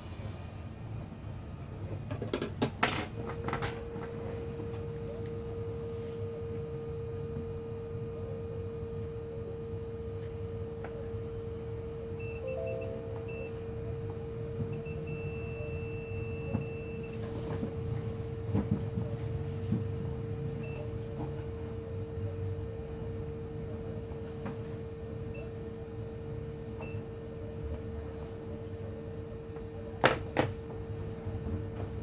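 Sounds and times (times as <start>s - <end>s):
multimeter continuity beeps: 12.2s - 13.6s, 14.7s - 17.2s.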